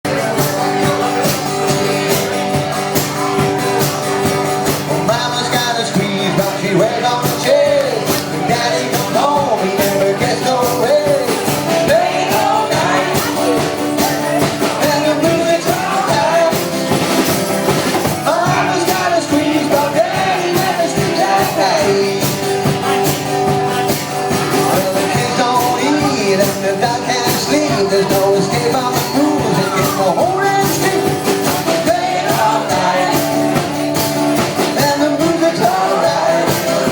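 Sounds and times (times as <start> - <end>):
percussive beat: 0.1 - 36.9
squeeze box chords: 0.1 - 36.9
person singing: 4.8 - 17.2, 18.0 - 36.9.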